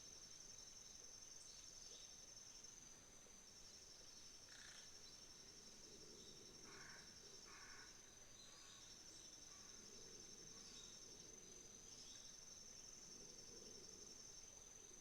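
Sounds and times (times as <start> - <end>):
insects trilling: 3.7 - 15.0.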